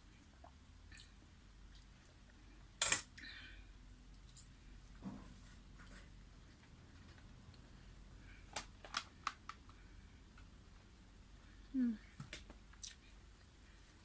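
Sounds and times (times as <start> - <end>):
tableware clicking: 2.8 - 3.1.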